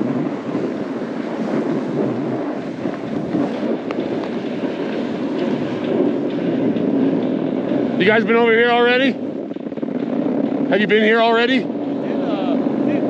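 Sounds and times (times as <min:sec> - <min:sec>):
snowboard sliding over snow: 0:00.0 - 0:07.0
wind rushing over microphone: 0:00.0 - 0:13.0.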